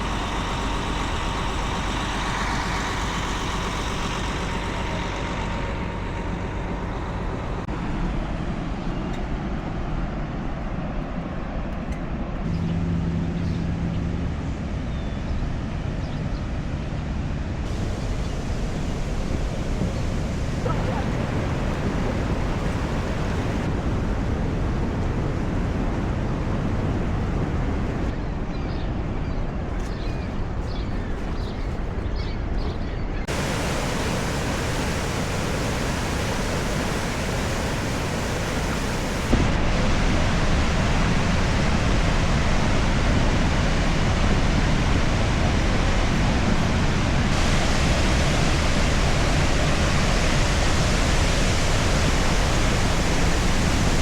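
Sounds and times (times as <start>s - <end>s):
waterfall rushing: 0.0s - 7.7s, 17.7s - 23.9s, 33.3s - 54.0s.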